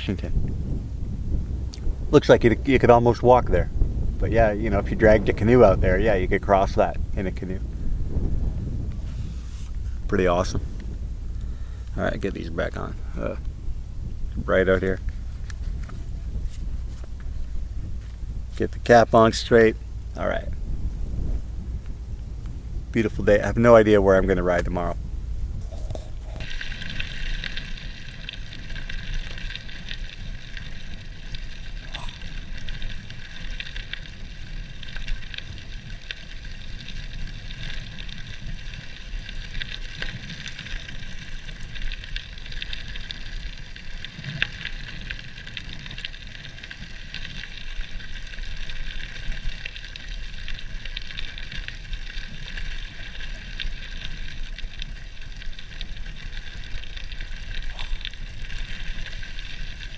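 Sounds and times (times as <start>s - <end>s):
bike tyres crunching on gravel: 0.0s - 59.9s
wind rumble on microphone: 0.0s - 59.9s.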